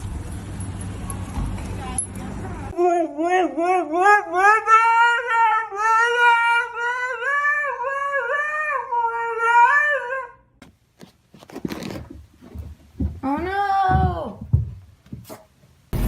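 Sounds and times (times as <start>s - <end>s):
dog howling: 3.4s - 10.4s.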